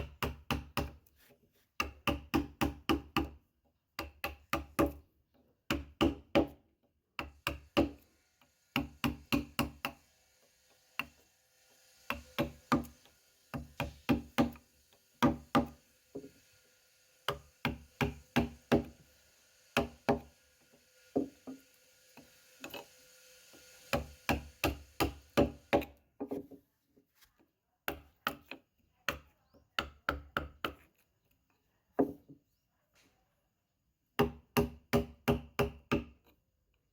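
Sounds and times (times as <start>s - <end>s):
mallet striking chisel into wood: 0.0s - 1.0s, 1.8s - 3.4s, 4.0s - 5.0s, 5.7s - 6.6s, 7.2s - 8.0s, 8.7s - 10.0s, 12.1s - 14.6s, 15.2s - 16.3s, 17.3s - 19.0s, 19.8s - 20.3s, 23.9s - 25.9s, 27.9s - 30.8s, 34.2s - 36.2s.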